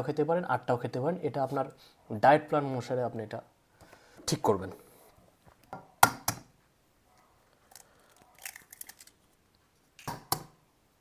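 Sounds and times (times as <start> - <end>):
eggshell crackling: 7.6 - 10.5
eggs knocking when cracked: 10.0 - 10.6.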